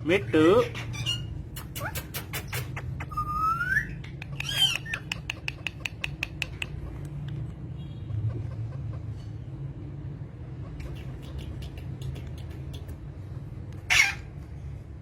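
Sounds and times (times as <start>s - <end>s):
squawky chirps and clicks: 0.8s - 7.5s, 10.6s - 13.1s.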